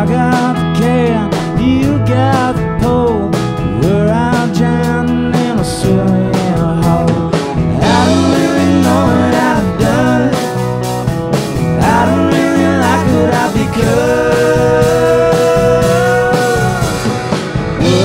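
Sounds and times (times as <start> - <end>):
country rock band playing live: 0.0 - 18.0
sliding lead guitar line: 0.0 - 18.0
steady bass: 0.0 - 18.0.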